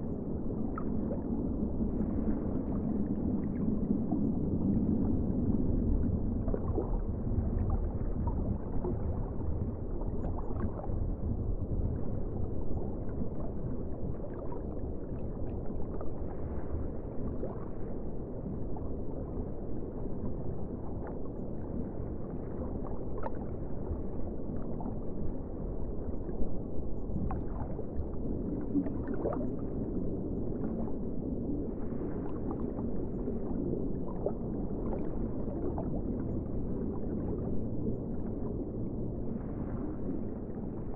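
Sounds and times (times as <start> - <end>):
muffled ocean water rumble: 0.0 - 40.9.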